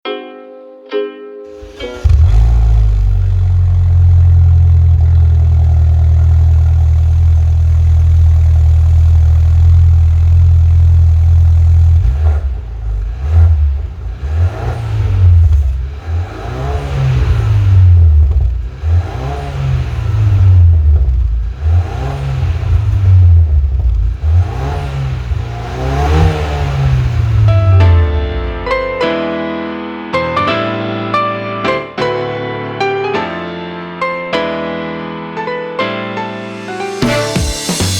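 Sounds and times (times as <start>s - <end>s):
car engine starting: 1.5s - 29.0s
car engine idling and revving: 1.6s - 28.9s.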